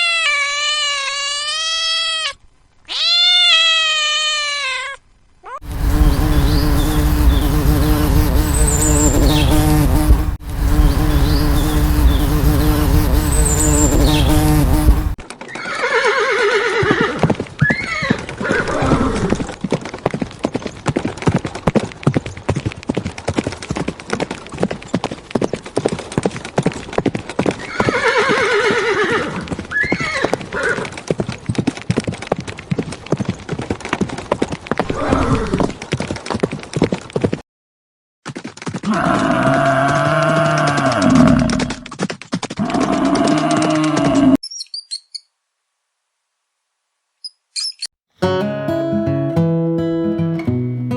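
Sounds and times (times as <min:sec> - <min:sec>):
rapid hoofbeats: 0:05.6 - 0:15.6, 0:16.7 - 0:37.4, 0:38.2 - 0:44.4
horse neighing: 0:15.5 - 0:19.4, 0:27.6 - 0:30.8, 0:38.8 - 0:41.8.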